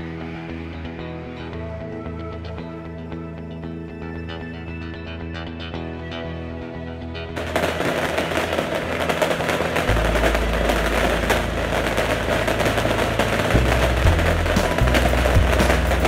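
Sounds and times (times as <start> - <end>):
bottle rockets firing and cracking: 7.4 - 16.0
heavy low rumble: 7.4 - 16.0.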